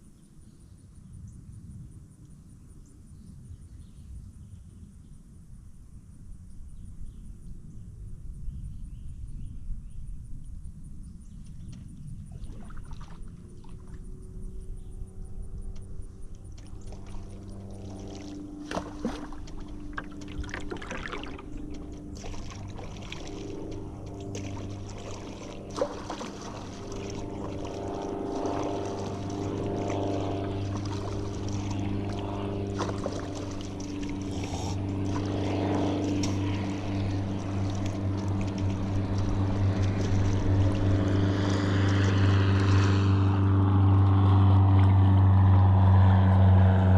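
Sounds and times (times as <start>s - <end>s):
motorboat engine running: 11.2s - 46.9s.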